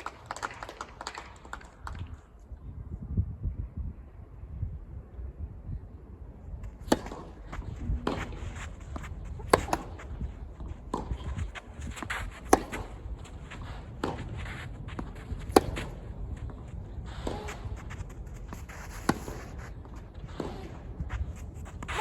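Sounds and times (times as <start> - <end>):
tennis ball struck by rackets: 6.7 - 22.0.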